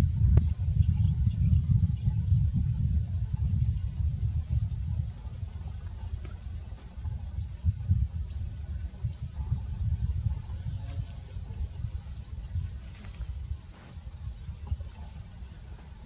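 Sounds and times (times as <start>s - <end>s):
wind on the microphone: 0.0s - 16.0s
small bird chirping: 3.9s - 16.0s.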